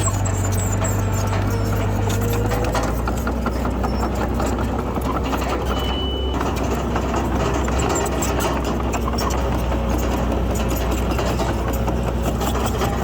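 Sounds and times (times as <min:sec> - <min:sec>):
bulldozer diesel engine running: 0:00.0 - 0:13.0
short high beep: 0:05.7 - 0:06.4.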